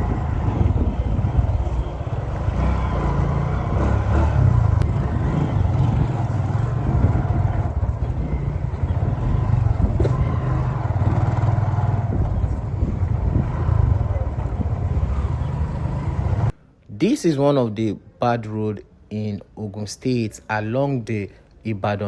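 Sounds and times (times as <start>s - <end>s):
vehicle engine running: 0.0s - 16.5s
road noise: 0.0s - 22.0s.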